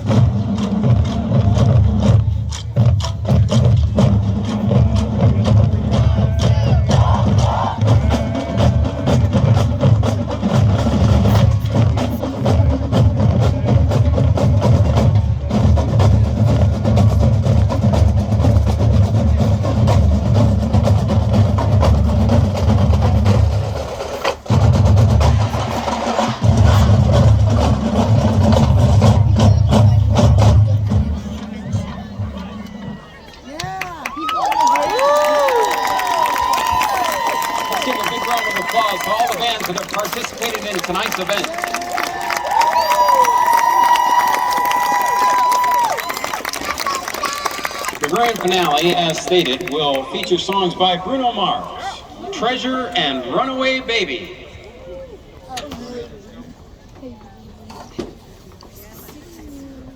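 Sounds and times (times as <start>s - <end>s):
heavy low drum: 0.0s - 32.4s.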